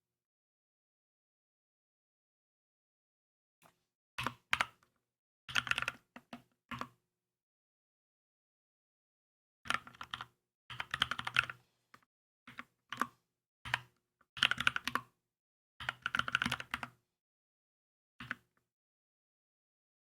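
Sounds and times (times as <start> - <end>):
typing on mechanical keyboard: 5.5 - 6.9, 9.7 - 11.6, 13.7 - 15.0, 15.8 - 17.0.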